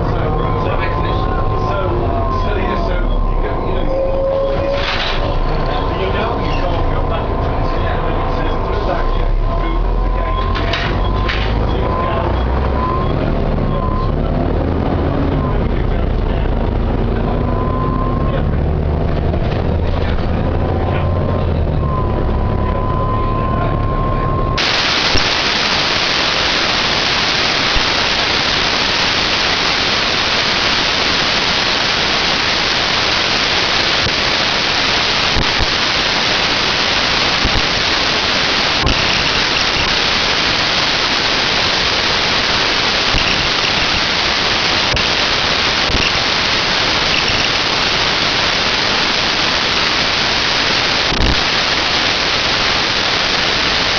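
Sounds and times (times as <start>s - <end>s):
bus diesel engine running: 0.0s - 53.9s
gearbox whine: 0.0s - 53.9s
loud steady hiss: 24.6s - 53.9s.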